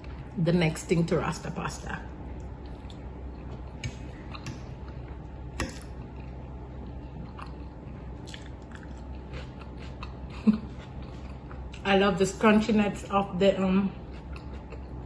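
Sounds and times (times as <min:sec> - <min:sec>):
person chewing crunchy food: 0:02.3 - 0:11.8, 0:14.0 - 0:15.0.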